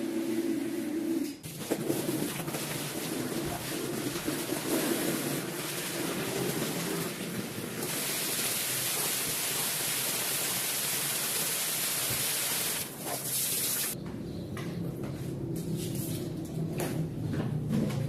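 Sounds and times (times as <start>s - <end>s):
water jet spraying on rug: 1.4s - 14.0s.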